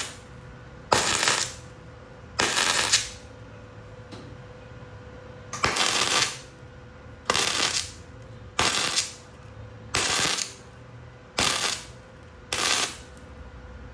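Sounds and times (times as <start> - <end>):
arc welding crackling: 0.0 - 1.8, 2.4 - 3.3, 5.6 - 6.6, 7.2 - 9.4, 10.0 - 10.7, 11.4 - 13.3
workshop hum: 0.0 - 13.9.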